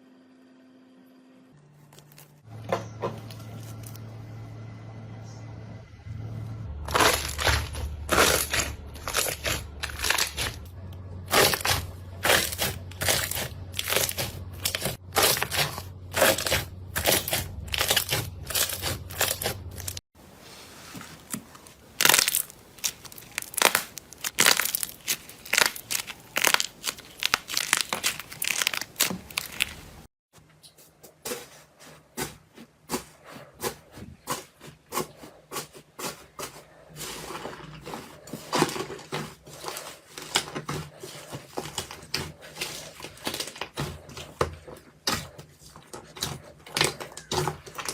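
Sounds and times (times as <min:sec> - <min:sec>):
slime crackling and popping: 0:06.9 - 0:10.7, 0:11.3 - 0:20.0, 0:21.9 - 0:30.0.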